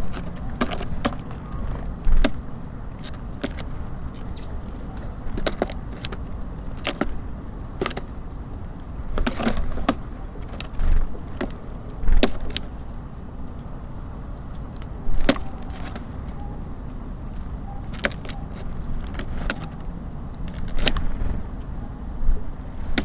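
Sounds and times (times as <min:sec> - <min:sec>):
birds landing thumps: 0:00.0 - 0:08.3, 0:09.0 - 0:12.7, 0:15.1 - 0:16.1
birds pecking at feeder: 0:00.0 - 0:23.0
city traffic rumble: 0:00.0 - 0:23.0.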